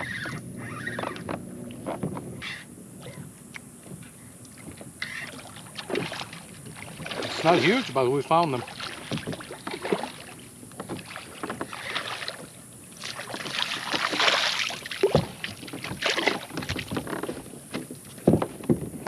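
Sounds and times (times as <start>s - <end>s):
water splashes: 5.0s - 17.0s.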